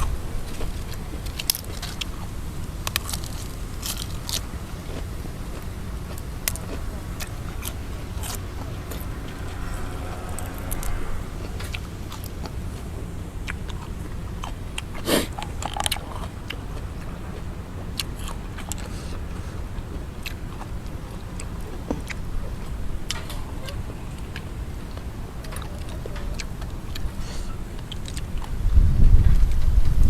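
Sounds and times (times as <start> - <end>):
biting chewing and crunching: 0.0 - 30.0
wind rumble on microphone: 0.0 - 30.0.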